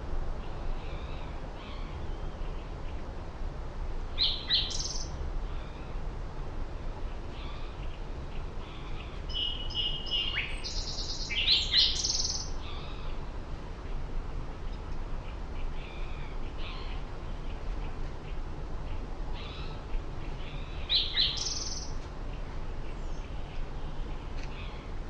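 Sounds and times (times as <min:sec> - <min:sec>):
low background rumble: 0:00.0 - 0:25.0
small birds chirping: 0:04.2 - 0:06.0, 0:07.0 - 0:14.0, 0:14.6 - 0:25.0.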